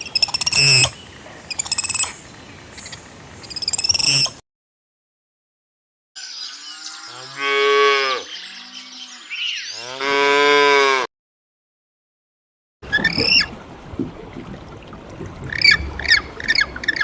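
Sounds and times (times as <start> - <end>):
cow mooing: 6.8 - 9.0, 9.7 - 11.1.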